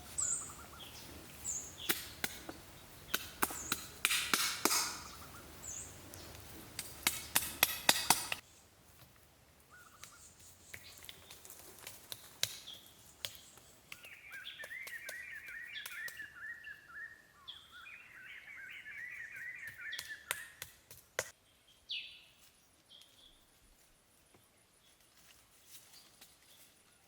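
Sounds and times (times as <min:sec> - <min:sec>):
sharp knocks and taps: 0:06.8 - 0:08.4
bird chirping rapidly: 0:14.0 - 0:20.6.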